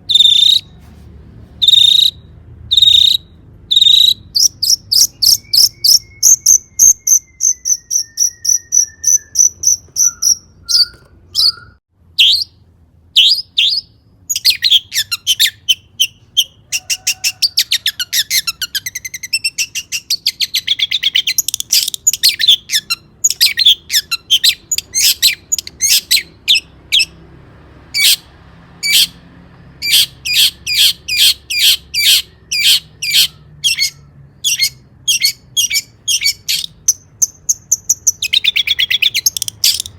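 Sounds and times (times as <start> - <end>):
bird singing sharp high notes: 0.0 - 0.8, 1.6 - 12.6.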